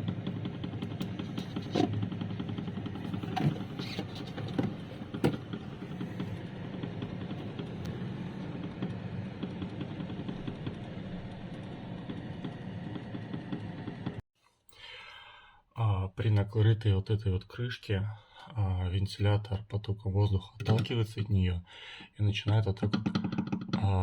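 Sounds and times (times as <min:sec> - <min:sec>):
refrigerator fan rattling knock: 0:02.9 - 0:06.4, 0:22.9 - 0:23.9.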